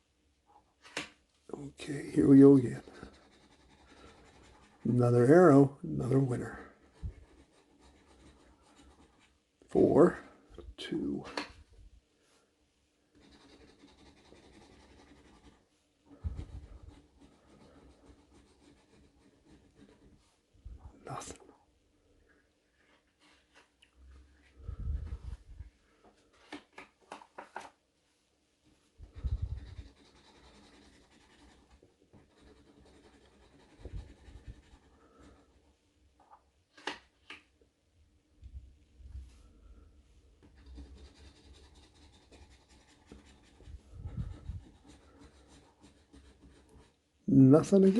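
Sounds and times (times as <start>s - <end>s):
scratching lottery ticket: 1.8s - 9.9s, 13.2s - 20.2s, 29.0s - 35.7s, 40.4s - 47.0s.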